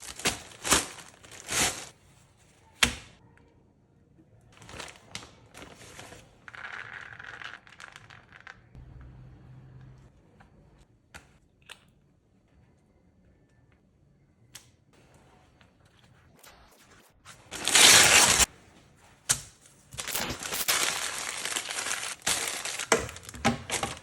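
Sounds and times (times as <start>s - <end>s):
rustling and crinkling: 0.0s - 2.6s, 4.6s - 8.8s, 17.4s - 24.0s.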